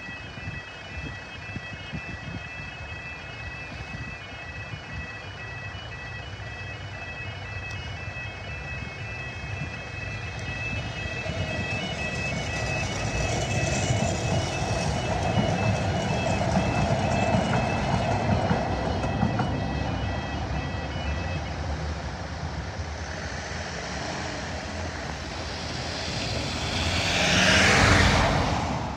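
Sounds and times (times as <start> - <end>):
crossing warning alarm: 0.0 - 28.9
road traffic: 0.0 - 28.9
train running: 0.0 - 28.9
van passing close: 21.6 - 28.9.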